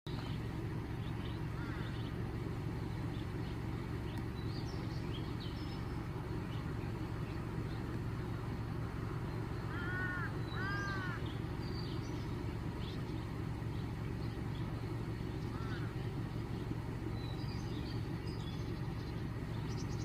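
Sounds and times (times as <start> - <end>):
steady low rumble: 0.1 - 20.0
bird cawing: 0.2 - 3.1, 4.7 - 18.1.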